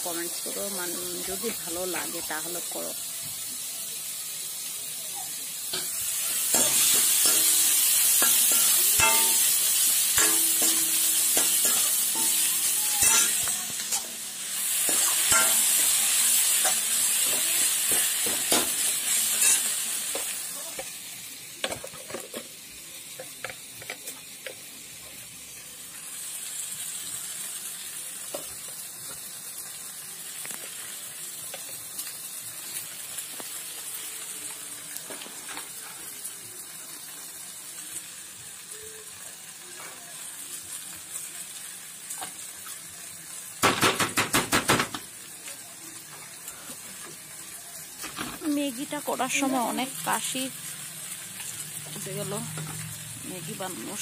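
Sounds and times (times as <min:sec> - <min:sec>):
vegetables sizzling in oil: 0:00.0 - 0:54.0
spatula scraping a pan: 0:05.7 - 0:14.1, 0:14.7 - 0:20.9.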